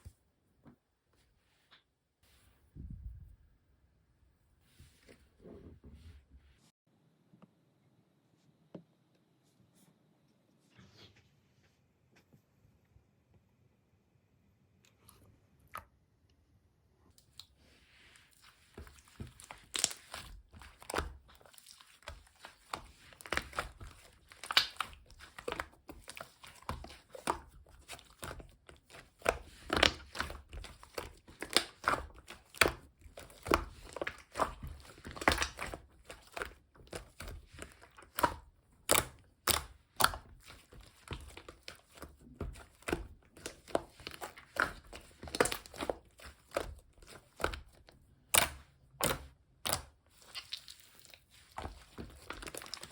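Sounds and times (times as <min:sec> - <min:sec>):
slime clicking and crackling: 0:18.6 - 0:52.9.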